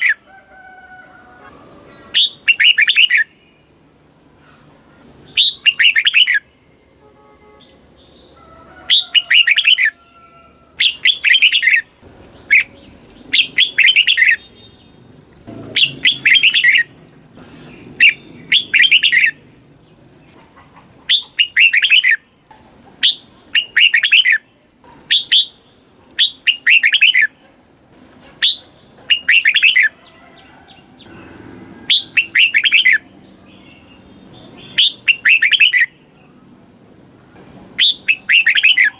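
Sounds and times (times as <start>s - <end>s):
bulbul singing rapid warbling: 1.9s - 3.7s, 4.3s - 6.6s, 8.9s - 10.0s, 10.8s - 20.4s, 21.0s - 22.4s, 23.0s - 27.4s, 28.4s - 30.0s, 30.9s - 36.3s, 37.7s - 38.9s.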